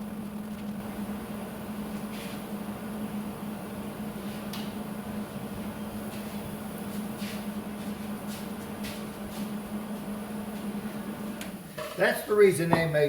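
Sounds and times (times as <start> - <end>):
electrical hum: 0.0 - 13.0
soft brushing sounds: 2.0 - 2.4, 6.1 - 10.7.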